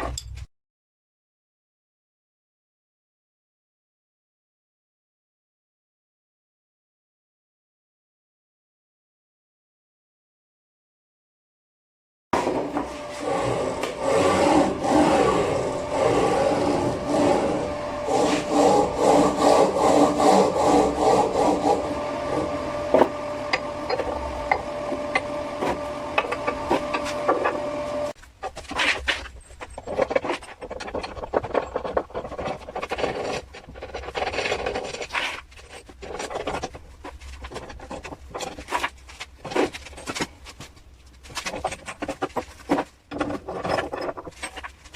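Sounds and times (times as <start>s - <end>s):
steady hum: 12.4s - 28.7s
tool scraping wood: 12.4s - 44.9s.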